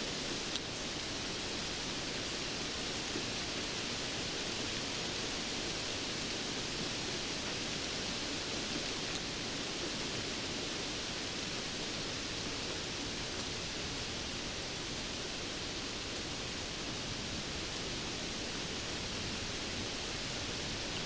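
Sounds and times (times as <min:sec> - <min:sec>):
steady rainfall: 0:00.0 - 0:21.0.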